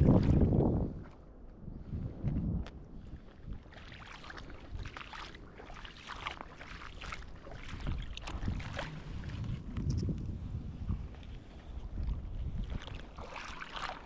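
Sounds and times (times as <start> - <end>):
wind buffeting microphone: 0.0 - 3.8, 7.2 - 13.6
shallow water splashing: 3.1 - 14.0.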